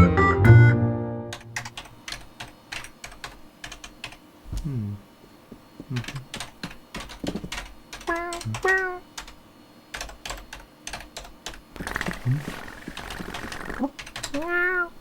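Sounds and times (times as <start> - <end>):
keyboard key clicks: 6.0 - 9.4.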